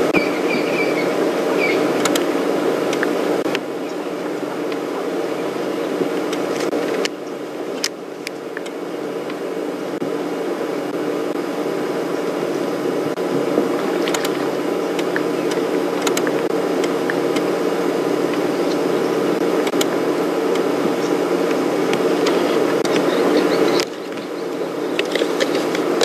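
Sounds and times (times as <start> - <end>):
engine-like hum: 0.0 - 26.0.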